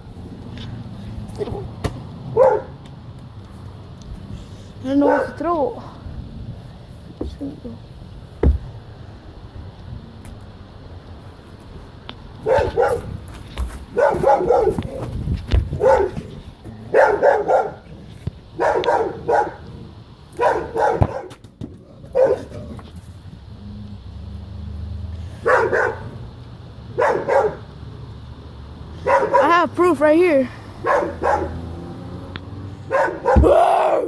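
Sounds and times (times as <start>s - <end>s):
dog barking angrily: 2.3s - 2.8s, 5.0s - 5.4s, 12.4s - 13.2s, 13.9s - 15.0s, 15.8s - 16.3s, 16.9s - 17.9s, 18.6s - 19.7s, 20.4s - 21.3s, 22.1s - 22.7s, 25.4s - 26.2s, 26.9s - 27.7s, 29.0s - 29.6s, 30.8s - 31.9s, 32.8s - 33.7s.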